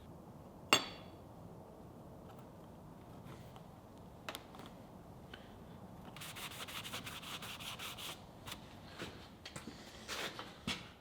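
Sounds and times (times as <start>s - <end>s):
rubbing on a hard surface: 6.2s - 8.2s.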